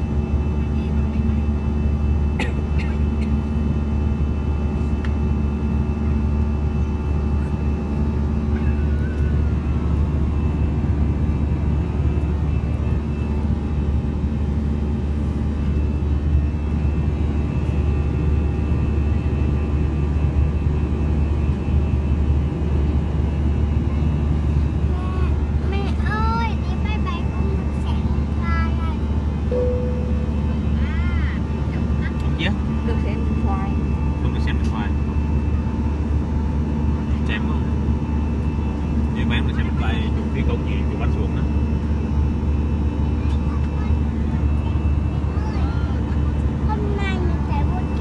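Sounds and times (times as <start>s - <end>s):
jet engine drone in cabin: 0.0s - 48.0s.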